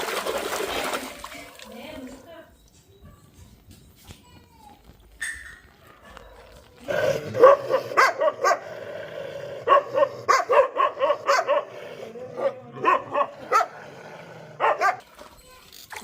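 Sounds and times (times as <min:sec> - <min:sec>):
dog barking: 0:07.3 - 0:08.8, 0:09.6 - 0:13.8, 0:14.6 - 0:15.0.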